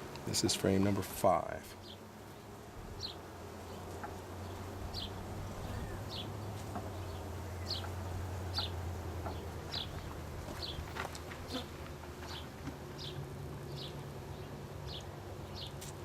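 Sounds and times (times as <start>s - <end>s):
honeybees buzzing: 0.0s - 16.0s
bird chirping: 4.4s - 10.8s, 12.3s - 15.8s.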